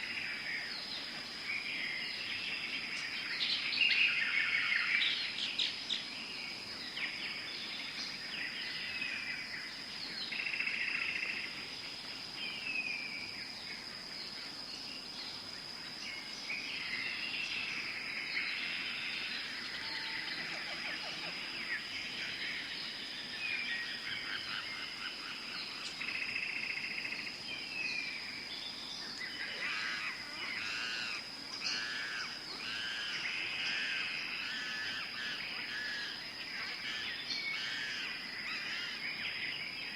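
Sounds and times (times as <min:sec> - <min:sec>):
birds calling and chirping: 0:00.0 - 0:39.9
high-pitched insect tone: 0:00.0 - 0:39.9.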